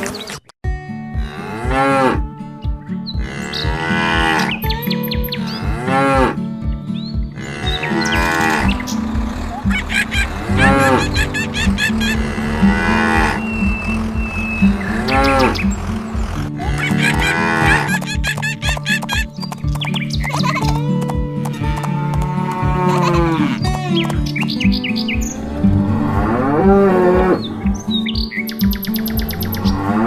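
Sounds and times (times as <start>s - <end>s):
background music with low pulse: 0.7s - 30.0s
cartoon cow mooing: 7.4s - 18.1s.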